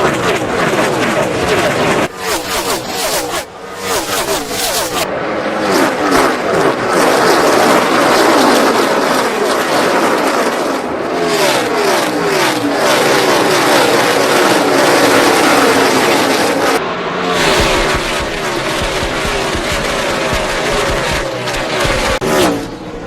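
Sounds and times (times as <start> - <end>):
race car engines passing by: 0.0 - 23.0
deep rumbling engine: 16.8 - 23.0.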